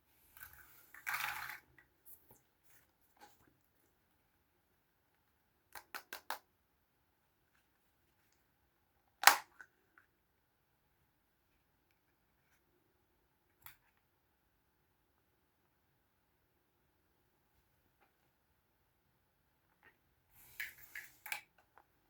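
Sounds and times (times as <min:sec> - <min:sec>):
plastic toys rustling: 0:00.3 - 0:02.3, 0:20.4 - 0:21.4
sharp plastic snap: 0:09.2 - 0:09.6.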